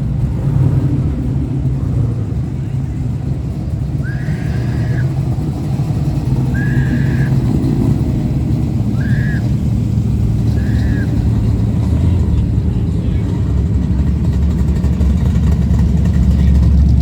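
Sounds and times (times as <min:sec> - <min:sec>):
truck engines rumbling: 0:00.0 - 0:17.0
rising and falling high tones: 0:04.0 - 0:11.4.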